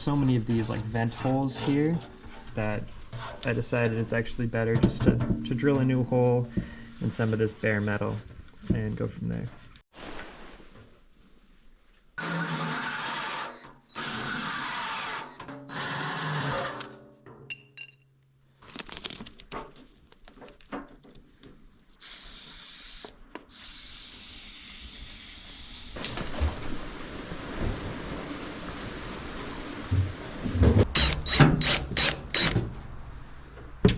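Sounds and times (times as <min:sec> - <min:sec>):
power drill cutting steel: 0:12.2 - 0:16.9, 0:22.0 - 0:26.0, 0:31.0 - 0:32.6.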